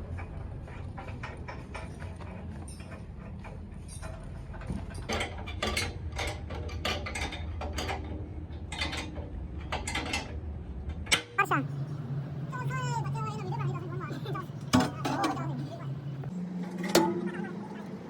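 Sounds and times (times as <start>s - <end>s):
low hum of machinery: 0.0s - 18.0s
metal clinking and clanking: 0.2s - 11.3s, 16.6s - 18.0s.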